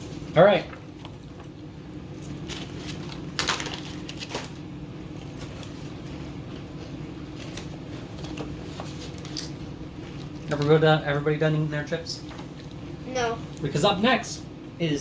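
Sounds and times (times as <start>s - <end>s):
steady low hum: 0.0s - 15.0s
potato chips crunching: 2.1s - 6.7s.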